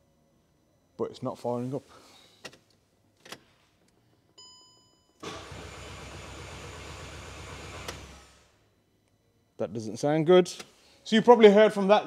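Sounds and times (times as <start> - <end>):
car engine cranking: 5.2 - 8.4.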